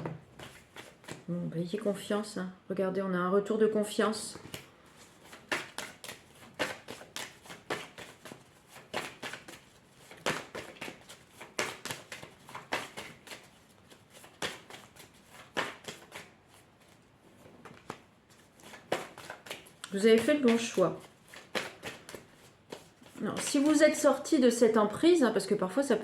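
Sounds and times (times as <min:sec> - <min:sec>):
cards being shuffled: 0:00.4 - 0:01.3, 0:04.3 - 0:24.2.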